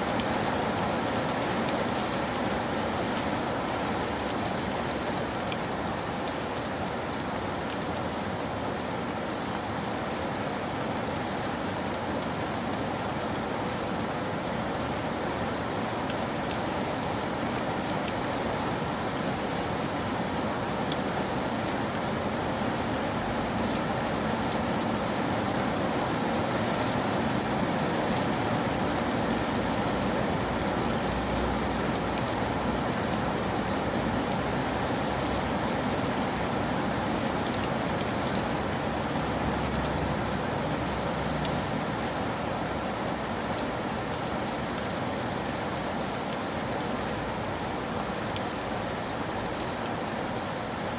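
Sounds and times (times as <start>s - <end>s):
rain patter: 0.0s - 50.9s.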